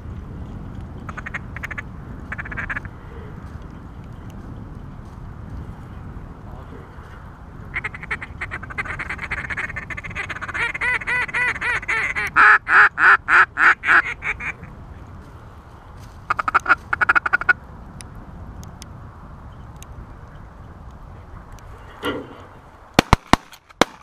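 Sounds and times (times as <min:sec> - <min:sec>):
duck call quacking: 0:01.1 - 0:02.9, 0:07.7 - 0:14.6, 0:16.3 - 0:17.6.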